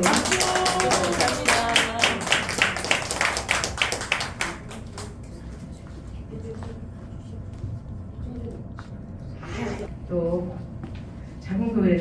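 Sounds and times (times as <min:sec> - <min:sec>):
people clapping: 0:00.0 - 0:05.7.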